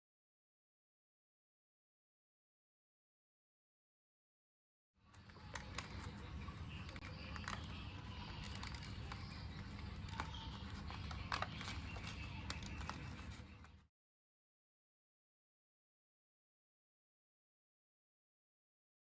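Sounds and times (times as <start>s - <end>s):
paper rustling and crinkling: 5.1s - 13.8s.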